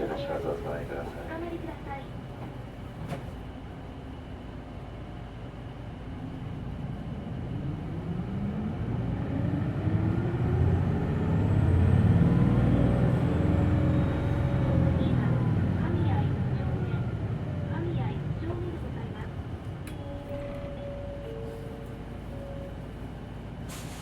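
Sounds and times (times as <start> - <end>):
bus engine revving: 7.9 - 16.9.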